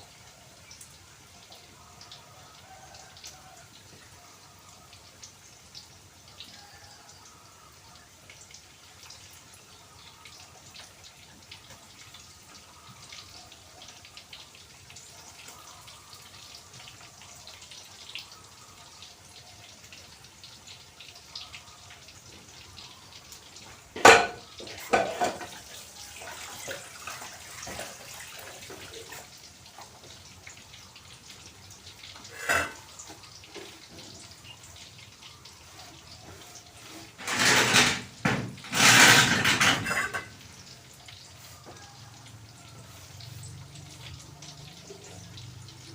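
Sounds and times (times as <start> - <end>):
pots and utensils clanking: 23.6 - 30.2, 32.0 - 34.5, 36.0 - 40.9.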